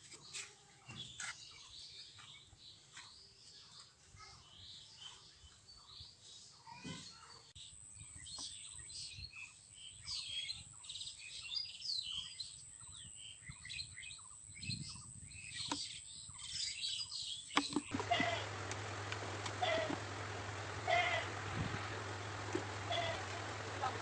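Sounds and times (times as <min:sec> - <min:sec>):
birds chirping: 0:14.2 - 0:24.0.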